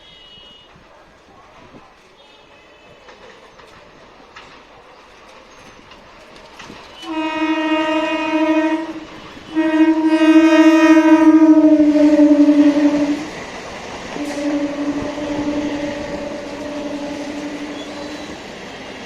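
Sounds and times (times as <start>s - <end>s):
train horn blasts: 0.0s - 0.8s, 7.0s - 13.4s, 14.1s - 18.5s.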